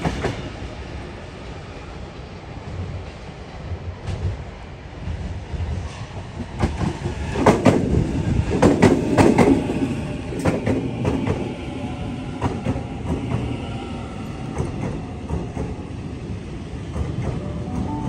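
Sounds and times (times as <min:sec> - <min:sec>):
train low rumble: 0:00.0 - 0:18.0
train wheels clacking over rail joints: 0:05.1 - 0:09.7, 0:10.3 - 0:11.5, 0:14.5 - 0:16.0.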